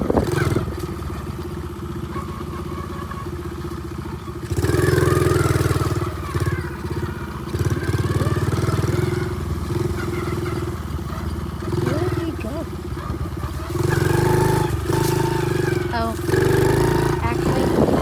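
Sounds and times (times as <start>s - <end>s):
pit bike engine running: 0.0s - 18.0s.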